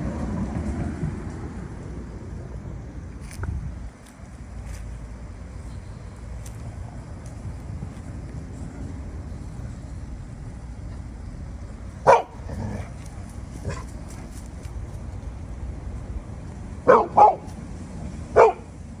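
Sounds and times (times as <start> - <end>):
steady low rumble: 0.0 - 19.0
dog barking: 12.0 - 12.9, 16.9 - 17.5, 18.4 - 18.7.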